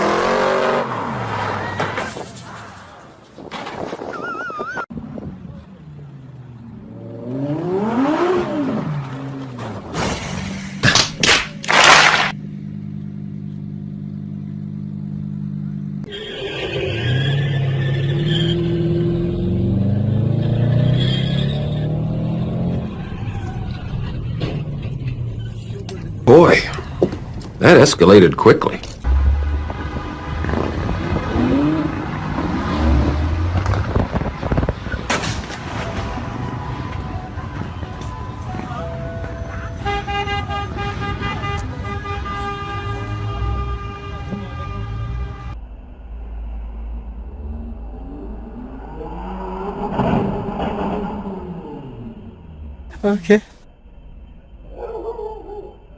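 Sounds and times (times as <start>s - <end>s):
engine running: 11.7s - 16.1s, 29.0s - 39.9s
low engine rumble: 28.9s - 32.2s.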